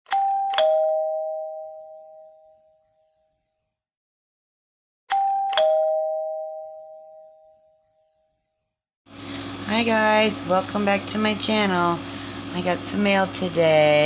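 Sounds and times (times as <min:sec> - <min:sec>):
two-tone doorbell chime: 0:00.1 - 0:03.9, 0:05.1 - 0:08.9.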